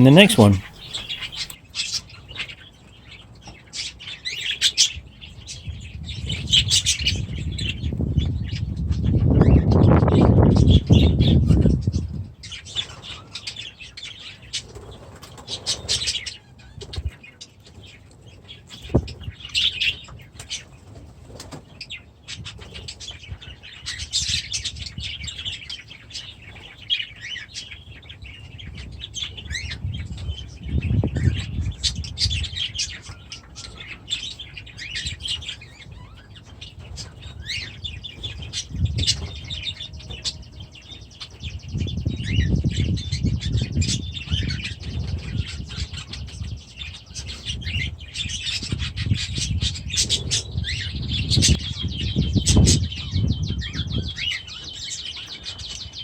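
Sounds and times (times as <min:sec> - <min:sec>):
birds chirping: 0:00.0 - 0:01.6.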